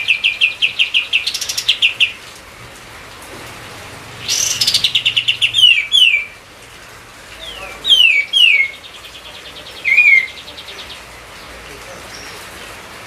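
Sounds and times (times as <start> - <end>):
faint bird trill: 7.5 - 11.0.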